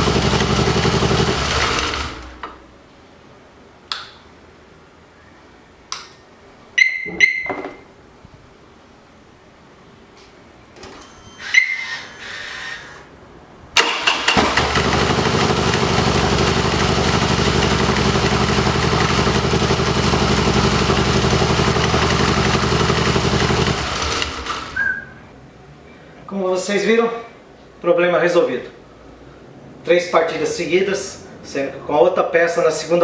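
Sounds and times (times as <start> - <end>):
motorcycle engine idling: 0.0 - 2.1, 14.4 - 24.8
motorcycle electric starter: 0.0 - 2.6, 13.8 - 24.9.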